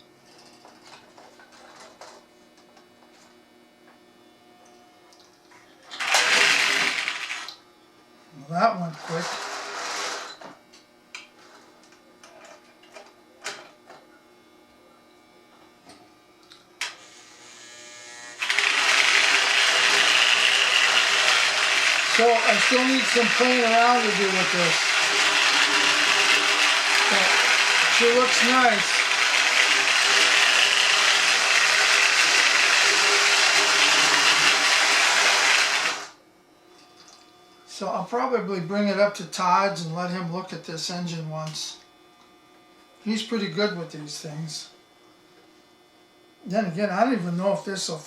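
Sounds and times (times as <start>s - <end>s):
toy train electric motor running: 6.0s - 7.5s, 16.8s - 36.2s.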